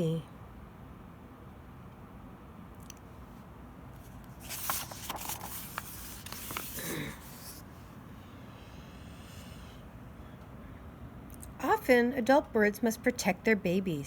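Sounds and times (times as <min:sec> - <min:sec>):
book page rustling: 0:04.0 - 0:07.8.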